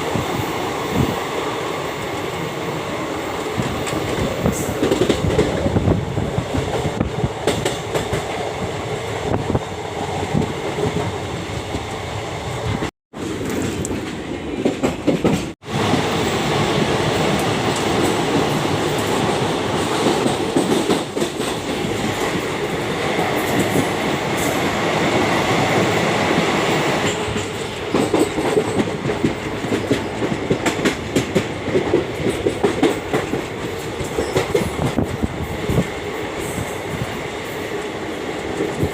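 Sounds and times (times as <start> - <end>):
train rumble: 1.9 - 38.9
train wheels clattering over rail joints: 13.2 - 15.6, 26.9 - 36.8.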